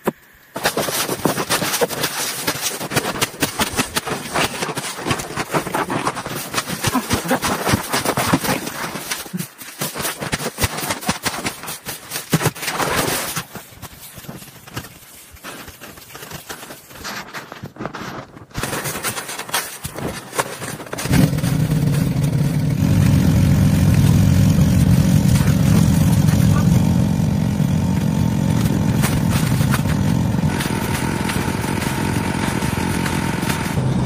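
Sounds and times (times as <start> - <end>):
knocking and scraping: 0.0 - 22.4, 27.9 - 33.8
engine running: 20.6 - 34.0.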